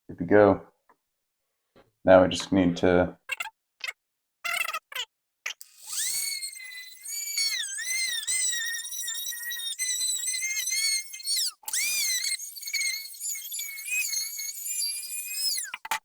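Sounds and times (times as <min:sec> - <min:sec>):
power tool squealing whine: 0:05.6 - 0:16.0.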